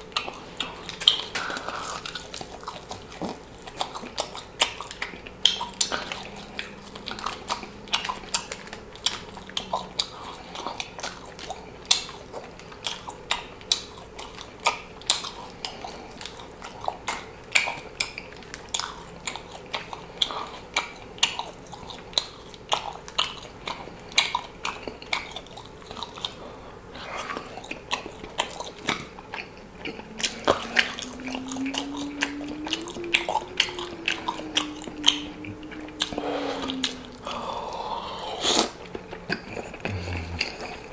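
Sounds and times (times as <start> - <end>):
person chewing food: 0.0 - 40.9
low steady tone: 4.9 - 11.1, 28.4 - 40.9
mouth clicks: 27.9 - 40.9.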